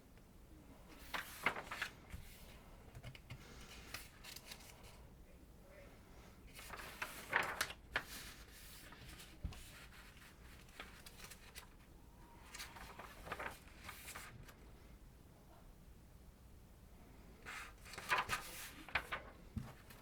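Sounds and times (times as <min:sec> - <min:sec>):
rustling and crinkling: 0:01.0 - 0:05.0, 0:06.5 - 0:14.6, 0:17.6 - 0:20.0.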